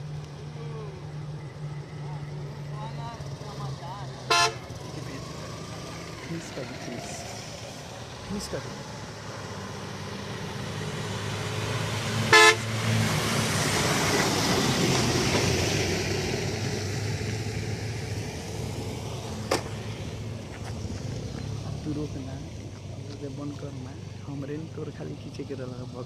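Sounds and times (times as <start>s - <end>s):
low engine hum: 0.0s - 26.0s
motor vehicle passing: 0.0s - 26.0s
vehicle horn toot: 4.3s - 4.7s, 12.3s - 12.6s.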